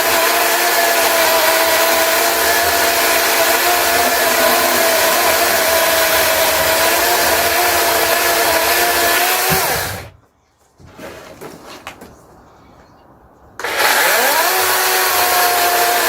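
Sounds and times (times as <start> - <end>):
chainsaw cutting logs: 0.0 - 10.0, 13.6 - 16.0.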